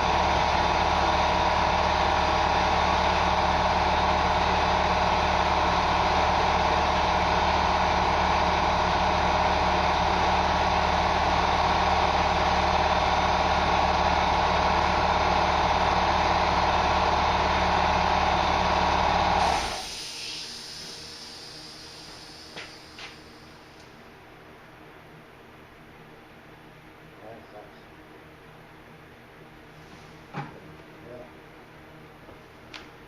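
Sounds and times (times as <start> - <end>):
steady machine drone: 0.0 - 24.3.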